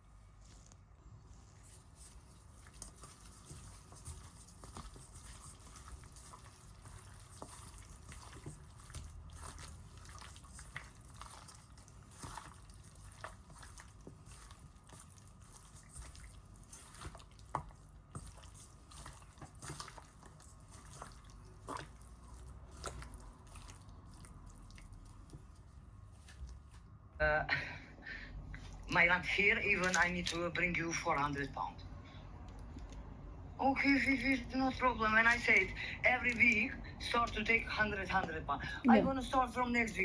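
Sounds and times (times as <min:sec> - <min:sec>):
chicken wings squelching in marinade: 0:01.7 - 0:26.8.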